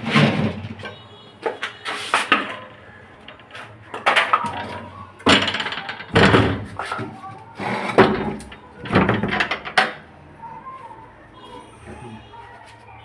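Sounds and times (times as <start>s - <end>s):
knocking and clattering: 0.0s - 10.0s.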